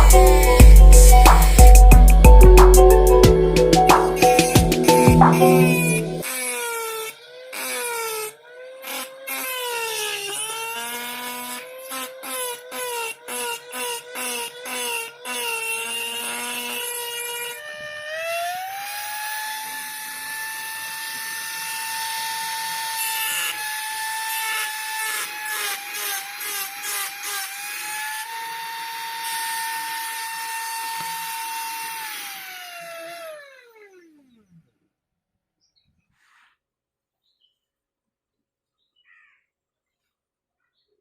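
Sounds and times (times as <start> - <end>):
rotary tool motor whining: 5.7 - 34.6.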